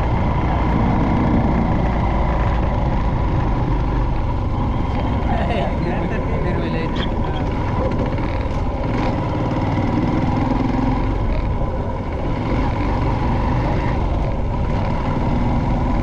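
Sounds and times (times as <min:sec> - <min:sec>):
motorcycle engine running: 0:00.0 - 0:16.0
road noise: 0:00.0 - 0:16.0.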